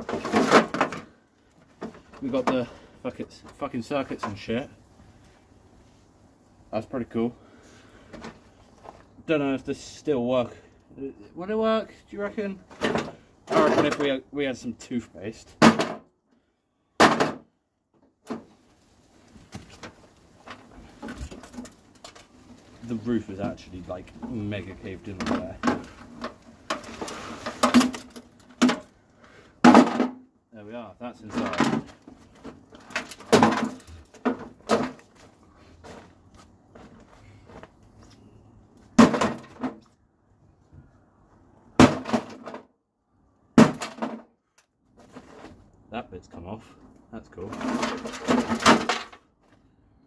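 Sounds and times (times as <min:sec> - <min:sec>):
clatter of broken parts: 0:00.0 - 0:02.8, 0:19.5 - 0:22.8, 0:25.1 - 0:29.0, 0:31.2 - 0:36.1, 0:39.0 - 0:40.0, 0:41.8 - 0:42.7, 0:43.6 - 0:44.3, 0:47.5 - 0:49.3
metal parts clattering: 0:47.5 - 0:49.2.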